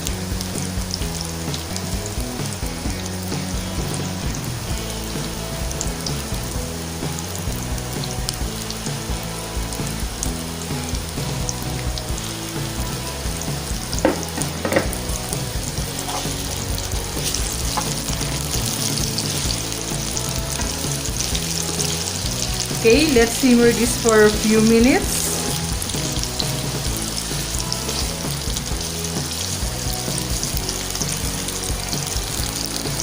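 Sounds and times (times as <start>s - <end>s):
vegetables sizzling in oil: 0.0s - 33.0s
sharp knocks: 14.0s - 15.1s.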